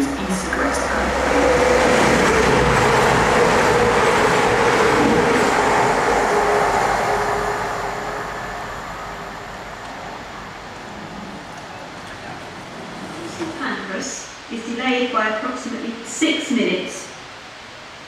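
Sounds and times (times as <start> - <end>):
diesel train engine: 0.0 - 13.6.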